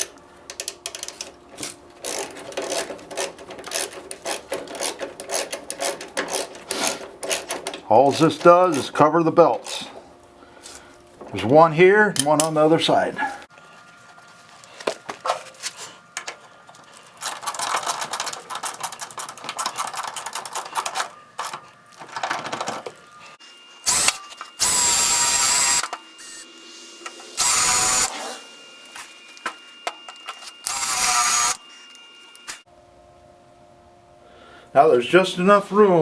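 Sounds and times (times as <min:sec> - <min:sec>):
cordless drill whirring: 0:23.8 - 0:26.5, 0:27.3 - 0:28.5, 0:30.1 - 0:32.6.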